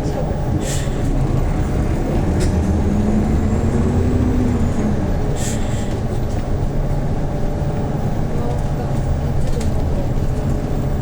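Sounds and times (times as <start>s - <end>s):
bus engine rumbling: 0.0s - 11.0s.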